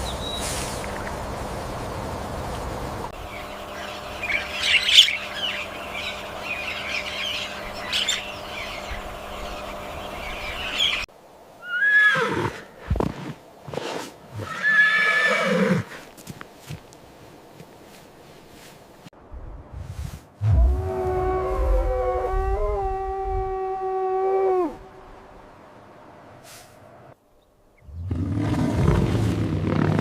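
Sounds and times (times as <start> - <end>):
steady background hum: 0.9 - 11.4.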